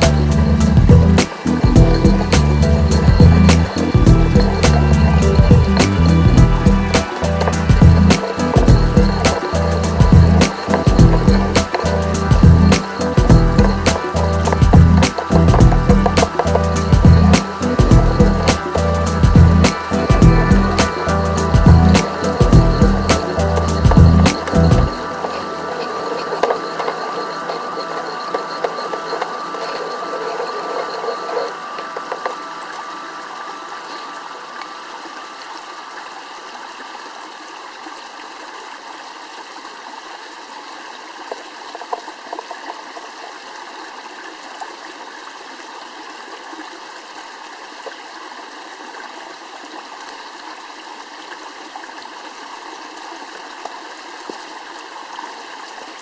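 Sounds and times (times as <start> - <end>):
music: 0.0 - 35.4
stream flowing: 0.0 - 56.0.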